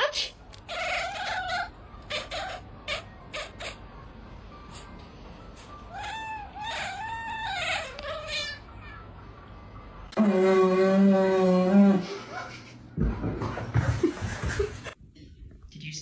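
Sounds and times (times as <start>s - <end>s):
cat meowing: 0.7s - 3.8s, 5.9s - 9.1s.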